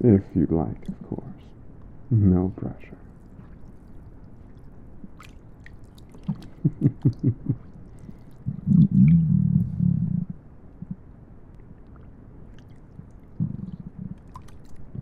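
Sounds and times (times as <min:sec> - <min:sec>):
stomach gurgling: 0:00.8 - 0:01.4, 0:03.0 - 0:15.0
low stomach rumble: 0:06.0 - 0:15.0.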